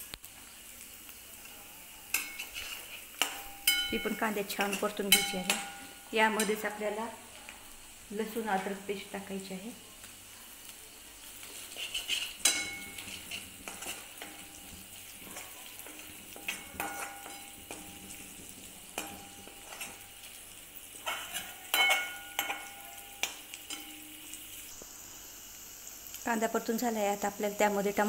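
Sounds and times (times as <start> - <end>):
food sizzling in hot oil: 0.0 - 28.0
metal spoon scraping and clinking pan: 2.1 - 6.7, 11.5 - 20.4, 21.0 - 24.2.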